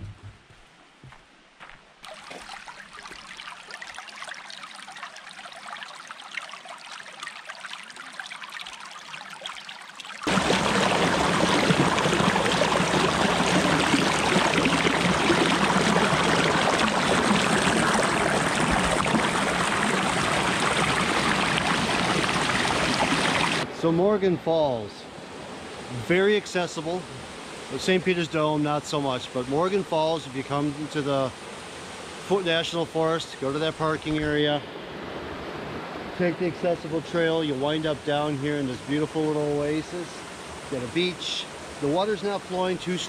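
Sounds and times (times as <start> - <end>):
waterfall splashing over rock: 2.0 - 23.6.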